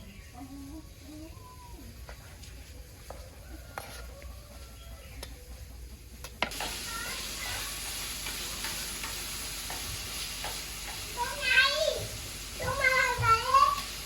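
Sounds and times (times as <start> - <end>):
food sizzling in a pan: 6.5 - 14.0.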